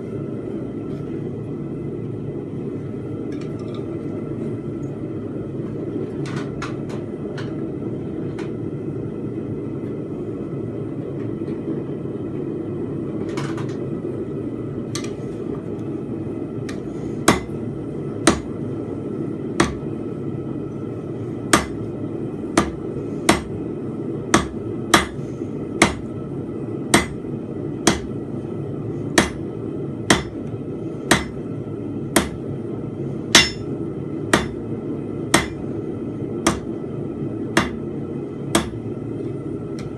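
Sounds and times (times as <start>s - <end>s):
hammer striking steel on anvil: 17.3s - 17.5s, 18.3s - 18.5s, 19.6s - 19.8s, 21.5s - 21.8s, 22.6s - 23.6s, 24.3s - 25.2s, 25.8s - 26.1s, 26.9s - 27.2s, 27.8s - 28.1s, 29.2s - 29.4s, 30.1s - 30.4s, 31.1s - 31.4s, 32.2s - 32.4s, 33.3s - 33.7s, 34.3s - 34.6s, 35.3s - 35.6s, 36.4s - 36.8s, 37.6s - 37.8s, 38.5s - 38.8s.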